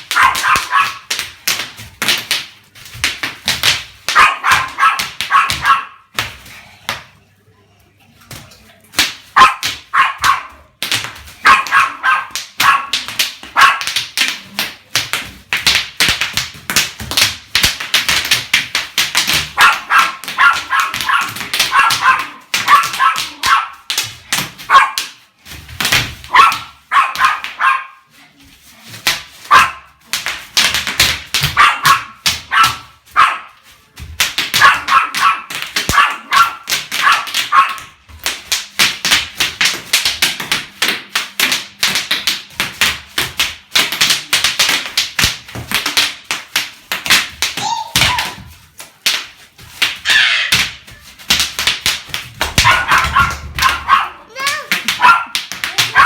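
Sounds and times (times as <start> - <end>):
high-pitched yelps: 47.6 - 48.4, 50.0 - 50.6, 52.7 - 56.0.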